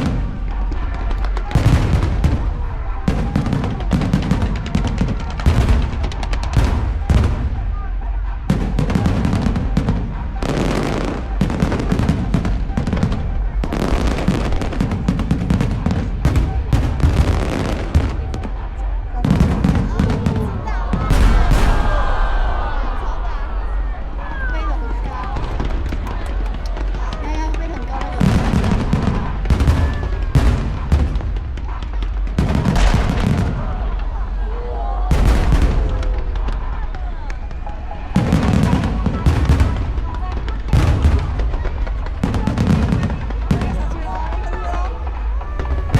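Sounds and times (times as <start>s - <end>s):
fireworks bangs and crackling: 0.0s - 45.9s.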